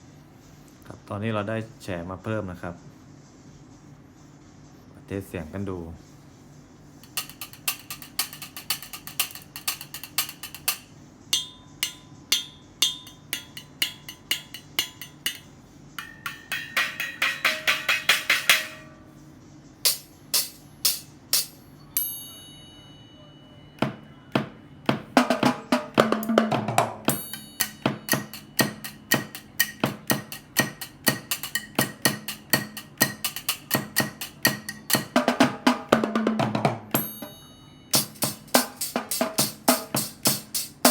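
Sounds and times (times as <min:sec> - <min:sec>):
can drums beating: 0:07.0 - 0:19.1, 0:19.8 - 0:21.6, 0:23.8 - 0:40.9
small cymbals crashing: 0:07.0 - 0:19.2, 0:19.8 - 0:23.0, 0:25.3 - 0:36.3, 0:36.9 - 0:40.9.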